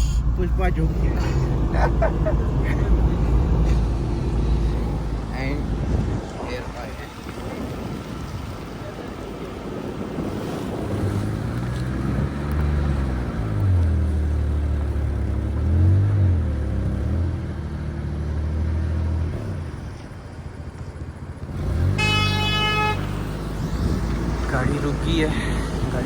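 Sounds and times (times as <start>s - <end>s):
car engine revving: 0.0s - 20.3s, 21.2s - 26.0s
car horn: 21.7s - 24.5s.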